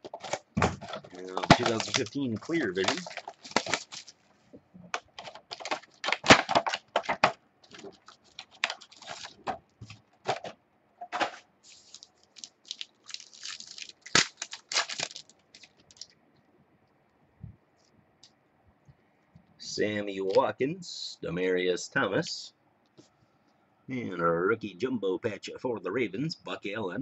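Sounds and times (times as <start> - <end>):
card packs tearing and crinkling: 0.0 - 4.2, 5.2 - 9.5, 11.1 - 16.0.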